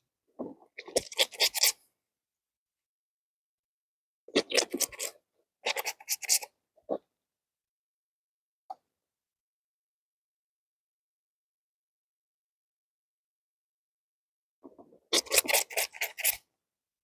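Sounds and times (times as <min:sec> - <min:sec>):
clothes scrubbed by hand: 0:15.1 - 0:16.4.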